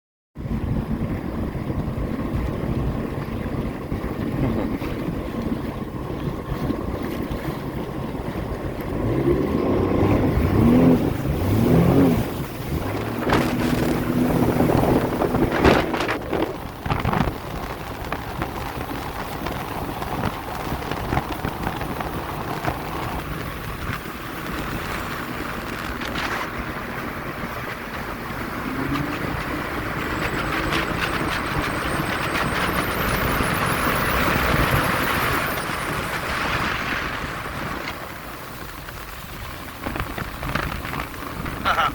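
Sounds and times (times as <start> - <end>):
jet ski engine running: 0.4 - 41.9
wind buffeting microphone: 0.4 - 41.9.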